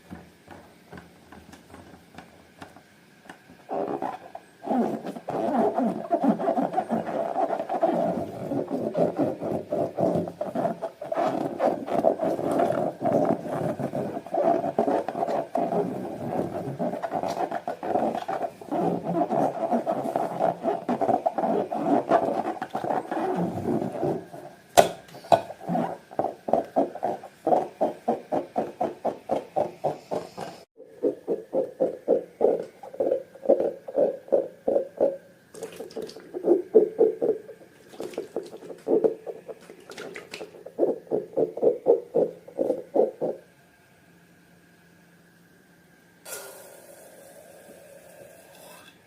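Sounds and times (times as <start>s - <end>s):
slime squelching by hand: 25.6s - 43.4s.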